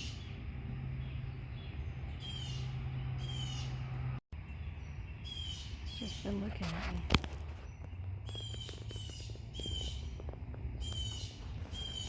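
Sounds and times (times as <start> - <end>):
blue jay harsh calls: 2.1 - 3.8, 5.2 - 6.8, 8.2 - 10.2, 10.8 - 12.0.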